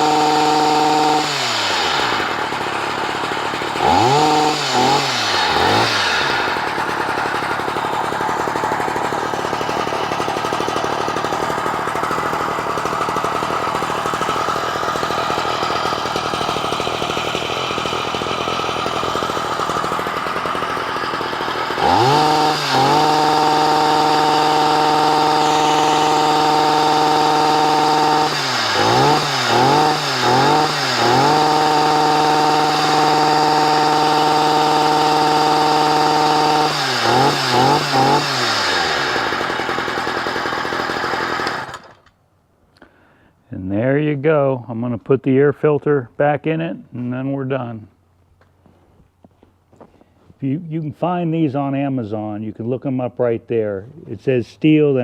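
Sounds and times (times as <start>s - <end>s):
small engine revving: 0.0s - 42.1s.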